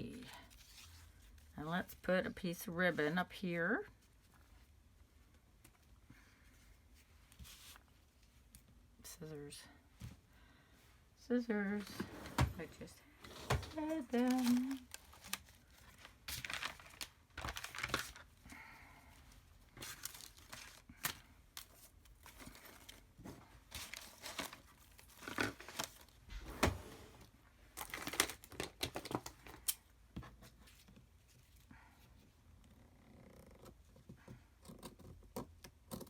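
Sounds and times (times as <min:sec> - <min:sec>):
paper rustling and crinkling: 0:13.2 - 0:18.4, 0:19.7 - 0:26.8, 0:27.7 - 0:31.6.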